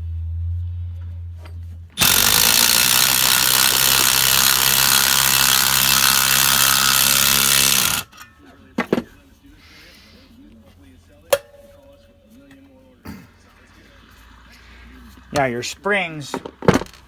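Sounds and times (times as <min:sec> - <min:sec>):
electric power tool spinning: 0:02.0 - 0:08.1.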